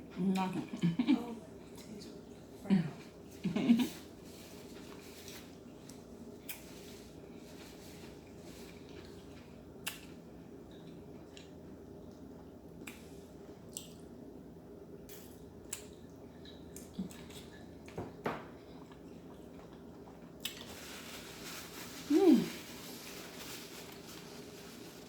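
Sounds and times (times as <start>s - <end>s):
low room hum: 0.0s - 25.0s
eating clicks and cracks: 9.8s - 10.2s.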